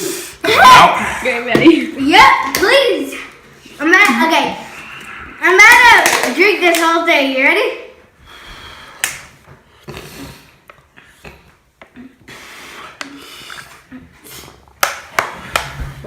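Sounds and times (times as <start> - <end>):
plastic bottle clicks and cracks: 14.8 - 15.7.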